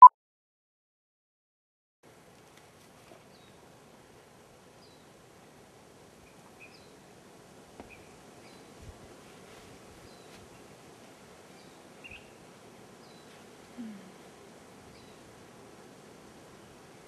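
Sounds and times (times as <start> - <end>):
faint outdoor ambience: 2.0 - 17.0
bird chirping: 6.2 - 7.0, 11.6 - 12.4.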